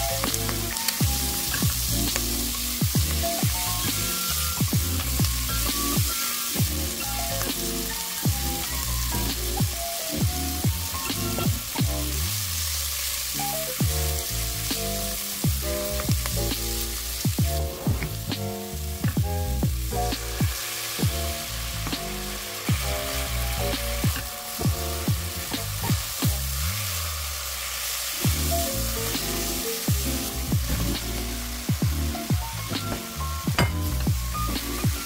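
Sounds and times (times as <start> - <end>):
background music with beat: 0.0 - 27.1, 28.2 - 35.0
meat sizzling in oil: 0.0 - 35.0.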